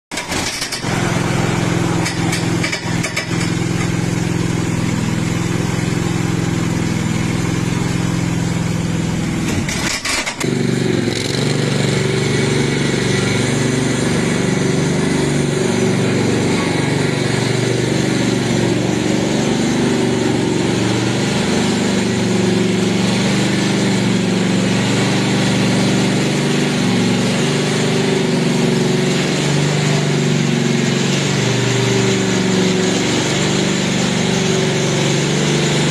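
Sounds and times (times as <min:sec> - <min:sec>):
lawn tractor engine running: 0:00.1 - 0:35.9.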